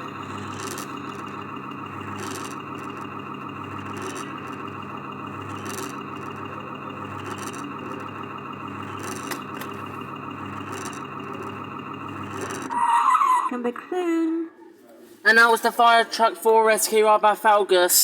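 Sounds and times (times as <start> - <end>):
truck engine sound effect: 0.0 - 13.6.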